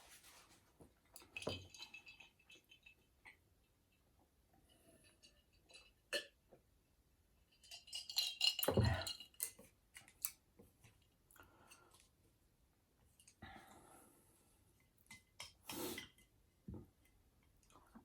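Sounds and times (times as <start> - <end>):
faint eating sounds: 13.1 - 18.0.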